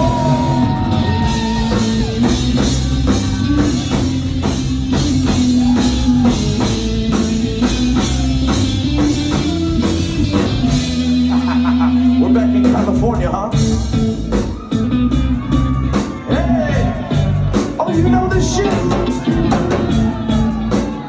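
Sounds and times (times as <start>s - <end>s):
electric guitar: 0.0s - 13.0s
bass guitar: 0.0s - 21.0s
drum kit beat: 0.0s - 21.0s.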